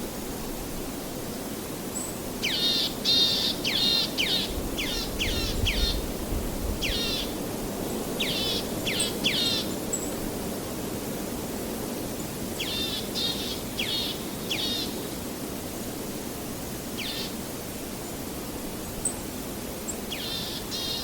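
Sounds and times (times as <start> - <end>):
songbird chirping: 19.9 - 21.0.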